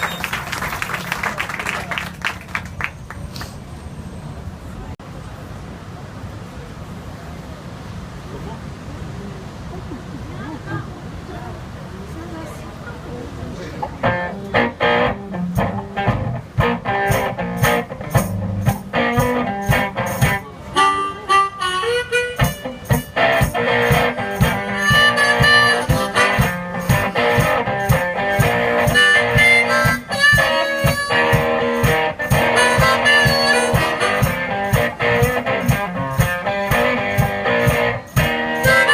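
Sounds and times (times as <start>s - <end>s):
guitar: 13.8s - 38.9s
sharp percussive strikes: 15.5s - 20.4s, 22.2s - 38.9s
harmonica: 20.7s - 35.3s, 37.2s - 38.9s.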